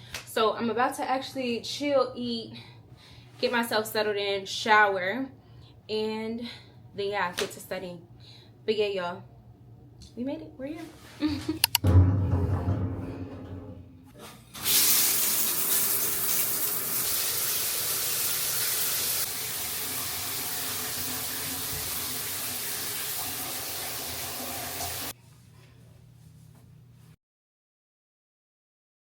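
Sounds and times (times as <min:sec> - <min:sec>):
water running from a tap: 0:14.6 - 0:25.1.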